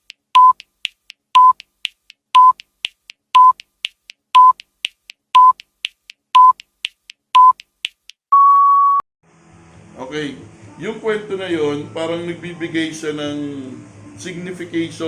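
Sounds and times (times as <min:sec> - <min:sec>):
clock-like ticks: 0:00.0 - 0:08.2
short electronic beeps: 0:00.4 - 0:00.6, 0:01.4 - 0:01.6, 0:02.4 - 0:02.6, 0:03.4 - 0:03.6, 0:04.4 - 0:04.6, 0:05.4 - 0:05.6, 0:06.4 - 0:06.6, 0:07.4 - 0:07.6, 0:08.3 - 0:09.0.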